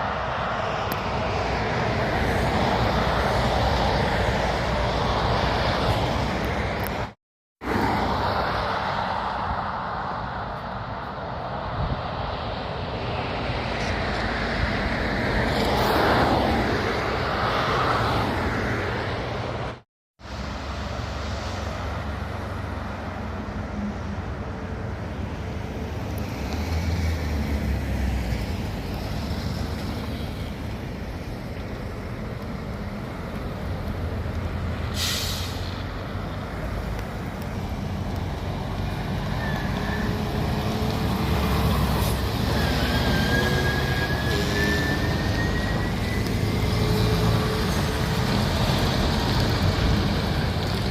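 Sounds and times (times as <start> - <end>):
heavy trucks driving past: 0.0 - 50.9
short hiss: 35.0 - 35.8.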